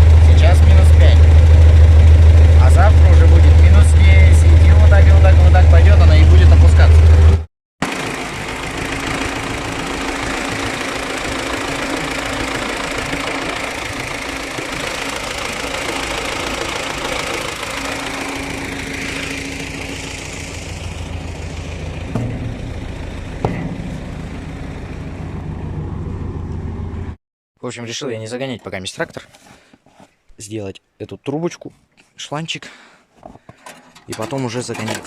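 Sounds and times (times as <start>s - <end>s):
tractor diesel engine clattering: 0.0s - 26.6s, 33.5s - 35.0s.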